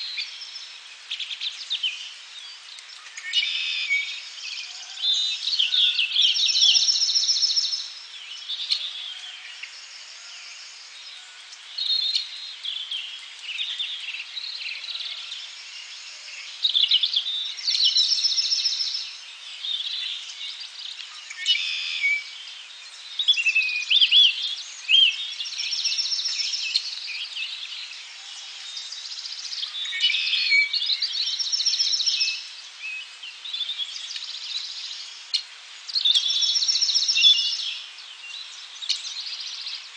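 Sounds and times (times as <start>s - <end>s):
birds chirping and whistling: 23.2s - 27.9s, 35.9s - 37.9s.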